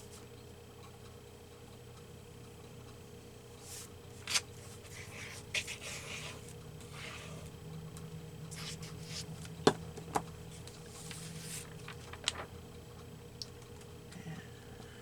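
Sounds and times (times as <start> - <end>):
steady low hum: 0.0 - 15.0
paper being handled and slid: 3.6 - 7.4, 8.5 - 9.4, 10.6 - 12.5.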